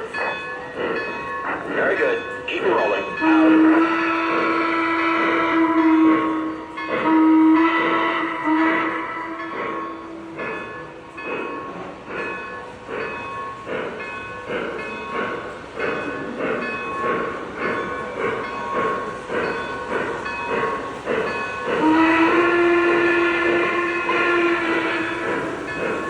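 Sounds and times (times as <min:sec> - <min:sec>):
steam locomotive chuffs: 0:00.0 - 0:26.0
steam whistle: 0:03.2 - 0:10.4, 0:21.6 - 0:26.0.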